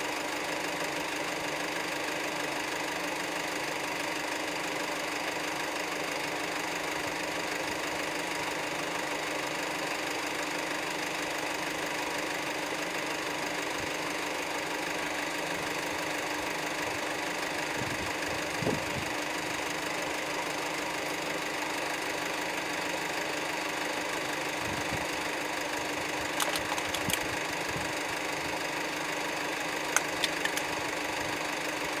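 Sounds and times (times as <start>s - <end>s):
vehicle engine idling: 0.0s - 32.0s
sharp clicks: 26.2s - 27.4s, 29.8s - 30.9s.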